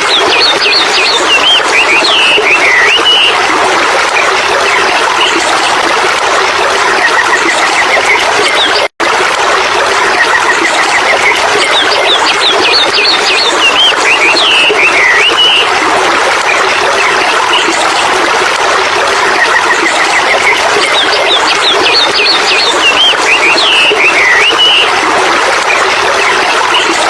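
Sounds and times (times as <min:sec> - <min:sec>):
stream running: 0:00.0 - 0:27.0
bird singing: 0:00.2 - 0:03.4, 0:11.9 - 0:15.6, 0:21.3 - 0:24.9.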